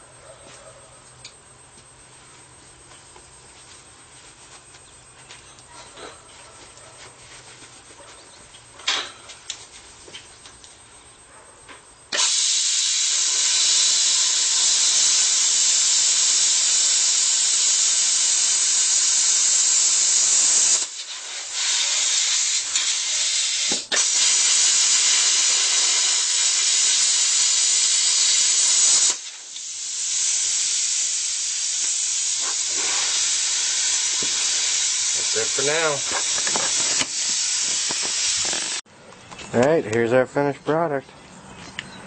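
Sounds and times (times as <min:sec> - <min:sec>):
plasma cutter hissing: 0:12.1 - 0:38.8
soft hiss of air: 0:12.1 - 0:38.8.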